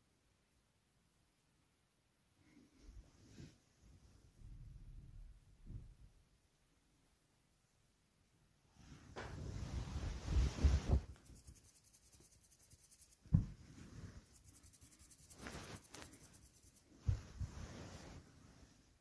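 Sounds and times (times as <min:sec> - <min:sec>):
kitten rustling on rug: 0:08.8 - 0:19.0
dull thumps: 0:13.2 - 0:13.7.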